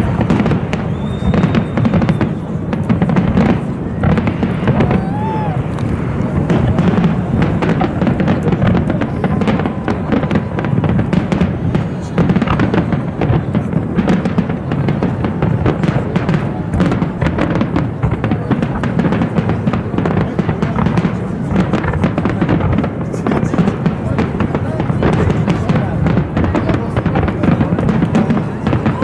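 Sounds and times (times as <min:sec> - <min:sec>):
fireworks cracks and booms: 0:00.0 - 0:29.0.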